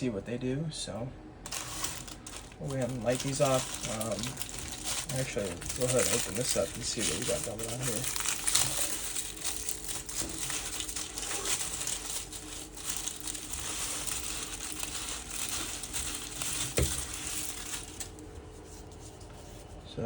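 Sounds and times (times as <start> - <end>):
plastic wrapping crinkling: 1.4 - 19.8.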